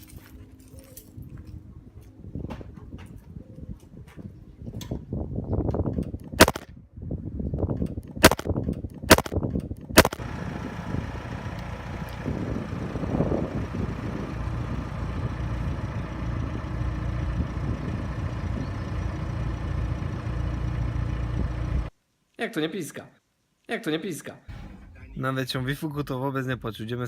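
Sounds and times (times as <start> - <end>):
diesel car engine running: 10.0 - 21.9.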